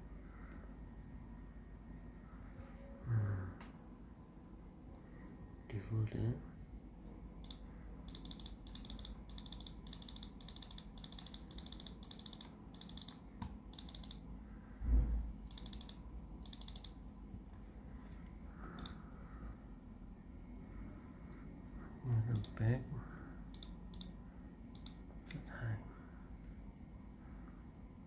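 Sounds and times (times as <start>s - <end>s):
crickets chirping: 0.0s - 28.0s
high insect trill: 0.1s - 28.0s.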